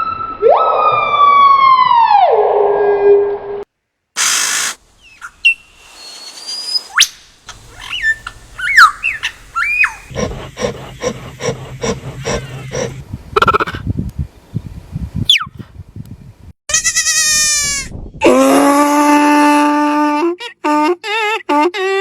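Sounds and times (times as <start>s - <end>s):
whistled chirps: 4.2s - 10.1s, 15.3s - 15.6s
animal hissing: 4.2s - 13.0s
pulsed animal calls: 7.5s - 13.7s.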